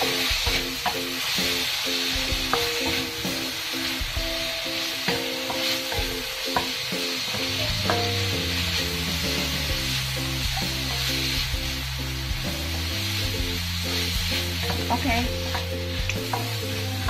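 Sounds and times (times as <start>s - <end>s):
meat sizzling in a wok: 0.0s - 17.0s
rhythmic background music: 0.0s - 17.0s.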